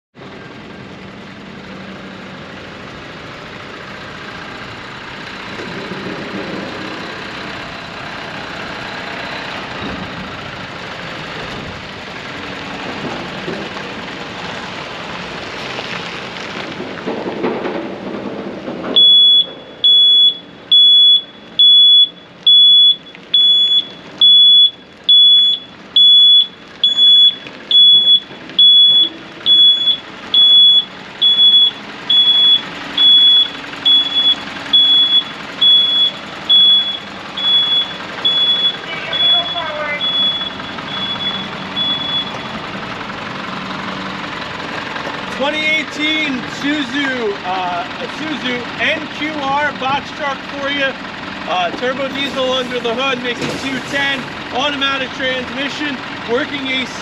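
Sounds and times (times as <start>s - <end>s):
truck running: 0.2s - 57.0s
reverse alarm beeping: 19.0s - 42.6s.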